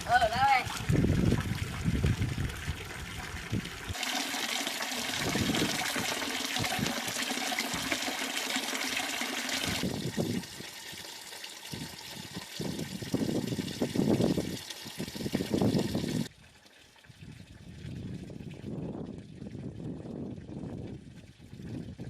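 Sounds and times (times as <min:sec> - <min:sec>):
running water rushing: 0:00.0 - 0:16.3.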